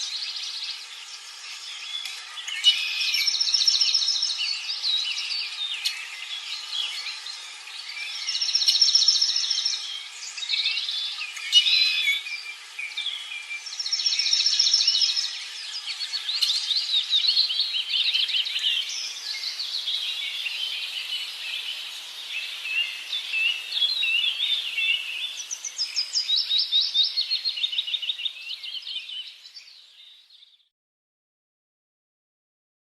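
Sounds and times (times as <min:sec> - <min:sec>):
birds singing: 0:00.0 - 0:30.7.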